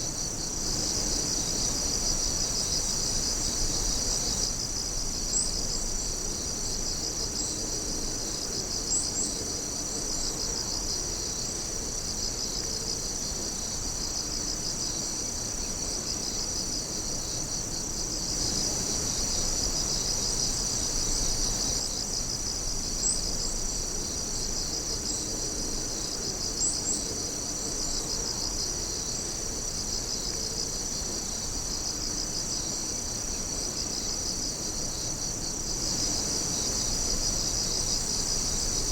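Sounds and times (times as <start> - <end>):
high insect chirps: 0.0 - 38.9
night insects trilling: 0.0 - 38.9.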